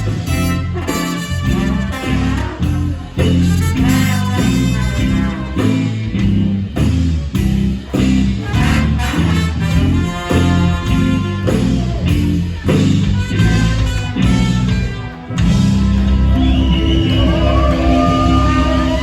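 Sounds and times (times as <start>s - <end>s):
bass line: 0.0s - 19.0s
live band playing: 0.0s - 19.0s.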